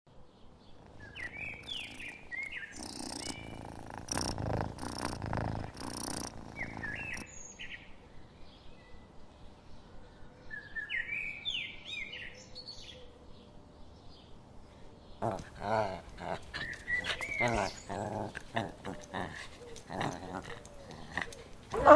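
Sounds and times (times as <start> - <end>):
birds chirping: 0.6 - 7.7, 15.0 - 21.9
rough noise: 0.8 - 7.2.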